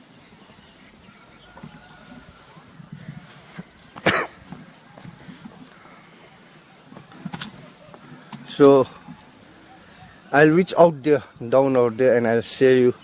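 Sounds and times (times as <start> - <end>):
faint bird chirps: 0.0 - 13.0
person coughing: 4.0 - 4.4.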